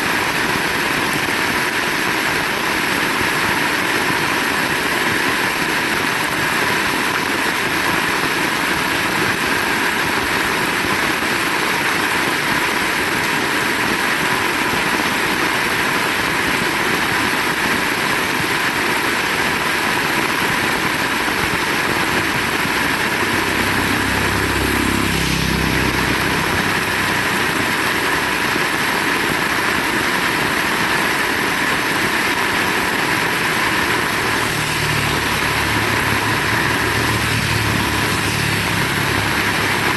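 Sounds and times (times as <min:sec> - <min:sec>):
heavy rain falling: 0:00.1 - 0:39.9
low rumble with falling pitch: 0:21.7 - 0:28.9.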